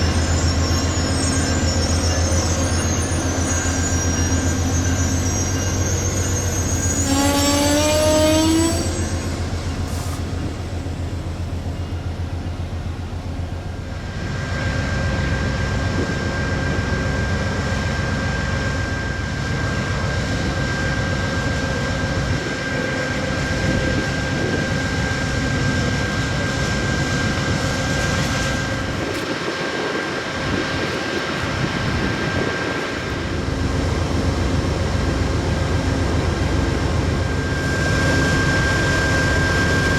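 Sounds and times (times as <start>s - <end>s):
brief rising squeal: 0.0s - 10.7s, 37.3s - 39.9s
diesel locomotive engine hum: 0.0s - 39.9s
train rumbling: 0.0s - 39.9s
steady high-pitched tone: 37.2s - 39.9s.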